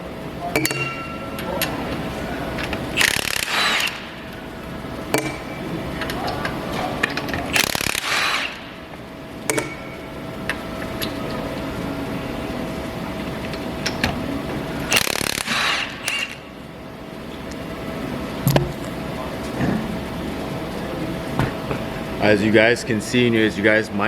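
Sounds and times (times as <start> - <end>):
tools clinking on metal: 0.6 - 1.7
loud burst of noise: 2.8 - 5.6, 7.4 - 9.2, 14.8 - 16.5.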